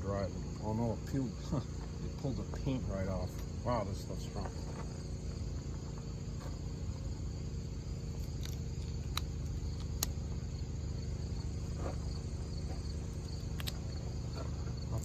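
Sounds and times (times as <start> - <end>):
high cricket-like drone: 0.0 - 15.0
steady low hum: 0.0 - 15.0
small clicks: 8.2 - 10.4, 13.2 - 14.0.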